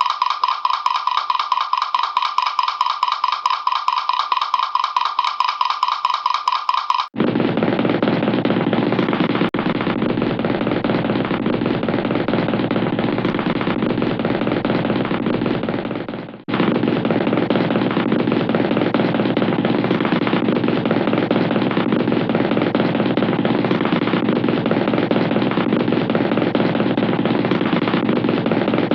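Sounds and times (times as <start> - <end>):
cartoon machine-gun rattle: 0.0 - 10.0.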